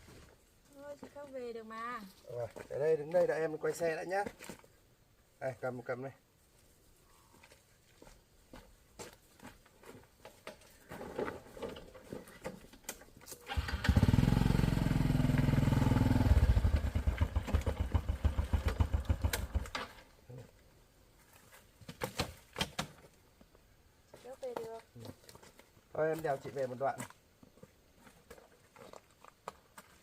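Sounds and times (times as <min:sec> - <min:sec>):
small motorbike engine running: 0:13.5 - 0:19.7.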